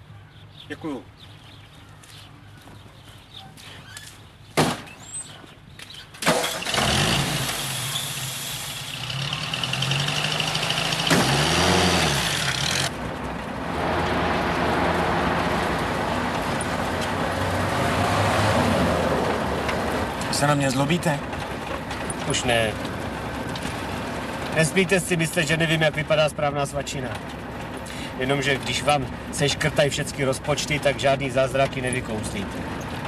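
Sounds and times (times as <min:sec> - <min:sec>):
vehicle engine starting and revving: 0:06.3 - 0:24.9.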